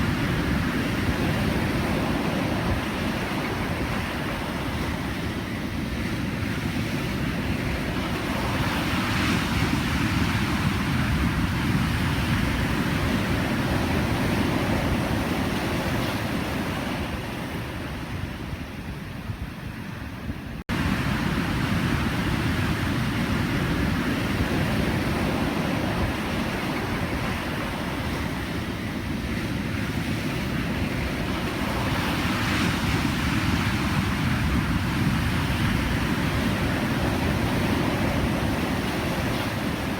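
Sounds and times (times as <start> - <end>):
waves breaking: 20.7 - 39.9.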